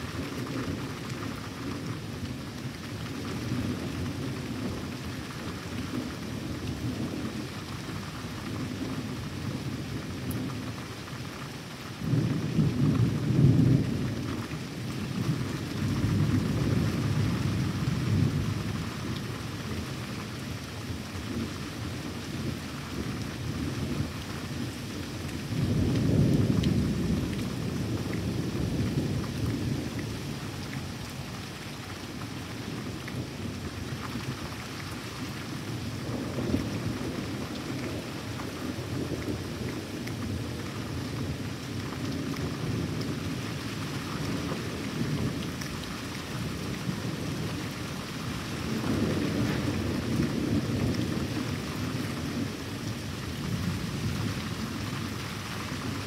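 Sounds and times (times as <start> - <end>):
steady rain: 0.0 - 56.0
rolling thunder: 48.6 - 52.6.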